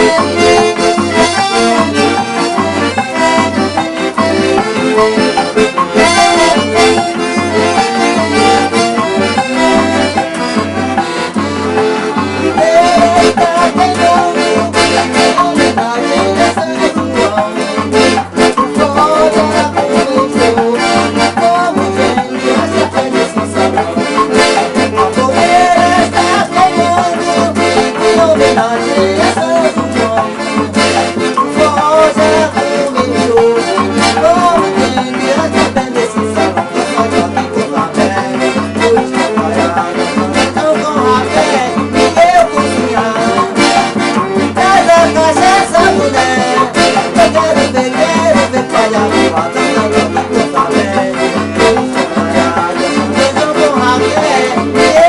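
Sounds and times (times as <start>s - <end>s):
accordion playing lively tune: 0.0s - 55.0s
light percussion: 0.0s - 55.0s
pulsing bass beat: 0.0s - 55.0s.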